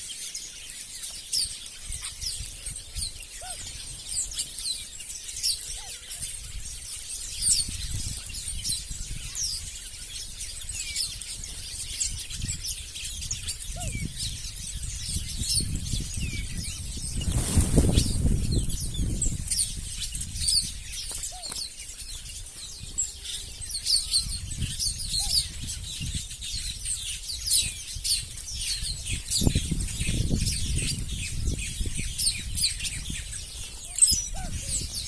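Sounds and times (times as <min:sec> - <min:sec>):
small birds chirping: 0:00.0 - 0:35.0
fluttering wingbeats: 0:16.6 - 0:24.0.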